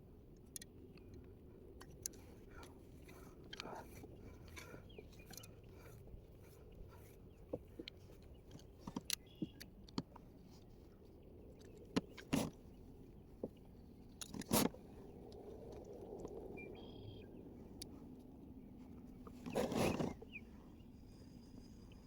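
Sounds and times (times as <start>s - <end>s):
small clicks and light knocks: 0.3s - 16.8s
low steady rumble: 9.7s - 22.0s.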